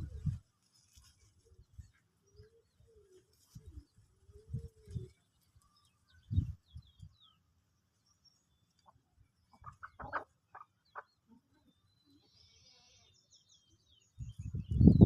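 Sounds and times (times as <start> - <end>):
chickens clucking: 8.8 - 11.8.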